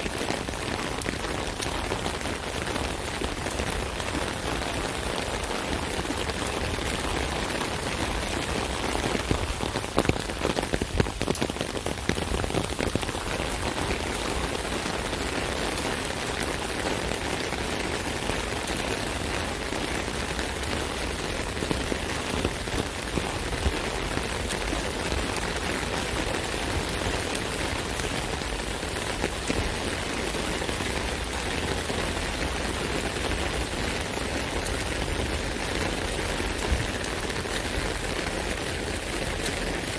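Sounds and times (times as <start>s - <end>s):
rain on an umbrella: 0.0s - 39.9s.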